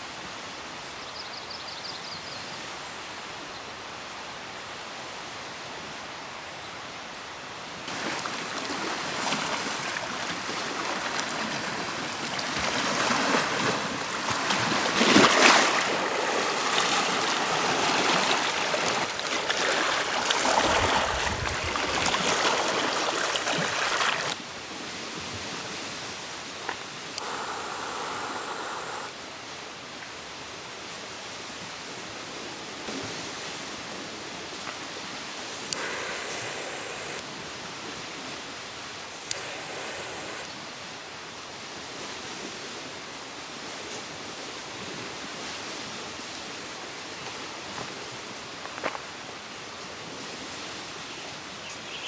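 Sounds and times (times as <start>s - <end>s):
rushing water: 7.9s - 24.7s.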